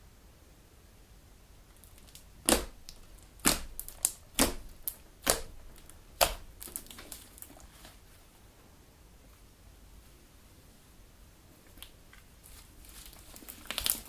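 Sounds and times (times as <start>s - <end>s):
slime crackling: 1.7s - 8.0s, 11.7s - 14.0s
slime popping and clicking: 1.8s - 7.5s, 13.4s - 14.0s.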